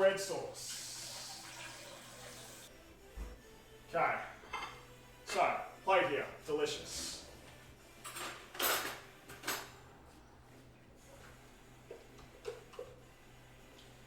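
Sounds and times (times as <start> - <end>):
plate and utensils clattering: 4.5 - 5.5.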